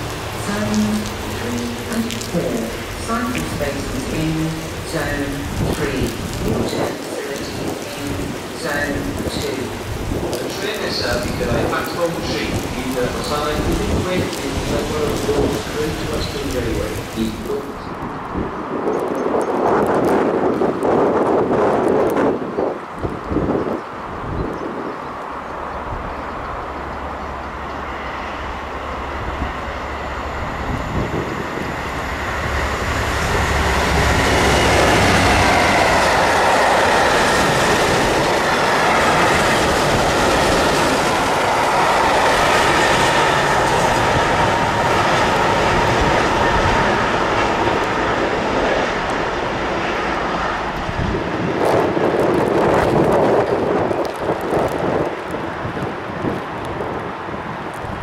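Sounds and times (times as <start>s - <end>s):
freight train passing: 0.0s - 58.0s
high whine: 25.4s - 51.8s.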